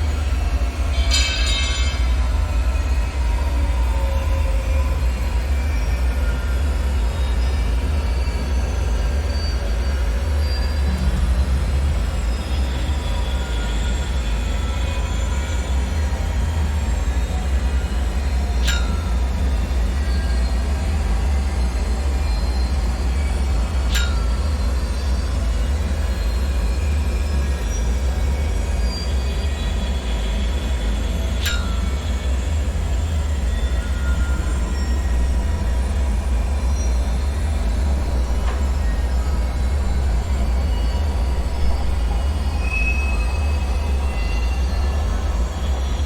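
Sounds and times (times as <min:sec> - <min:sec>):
low rumble: 0:32.3 - 0:46.0.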